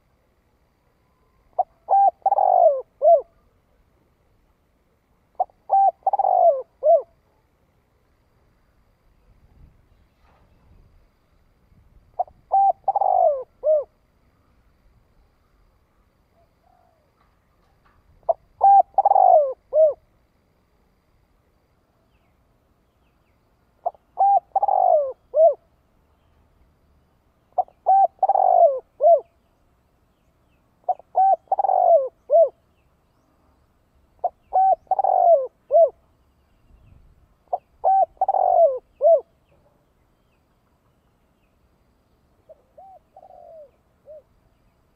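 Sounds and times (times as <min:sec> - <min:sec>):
dove cooing: 0:01.1 - 0:03.8, 0:05.3 - 0:07.4, 0:12.1 - 0:14.0, 0:16.3 - 0:17.2, 0:18.2 - 0:20.1, 0:23.8 - 0:25.7, 0:27.5 - 0:29.4, 0:30.8 - 0:32.6, 0:34.2 - 0:36.0, 0:37.5 - 0:39.6, 0:42.4 - 0:44.4.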